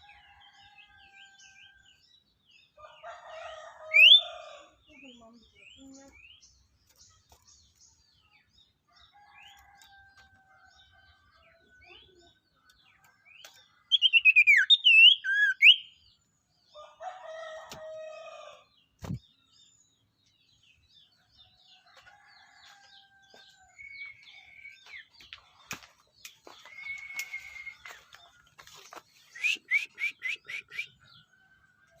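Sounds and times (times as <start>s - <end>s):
songbirds singing: 0.0s - 32.0s
rooster or chicken call: 2.9s - 4.8s.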